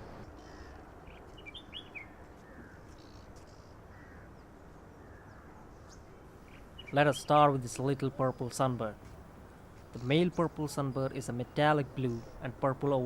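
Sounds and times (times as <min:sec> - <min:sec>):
wild birds chirping: 0:00.0 - 0:08.9
low outdoor background hum: 0:00.0 - 0:13.0.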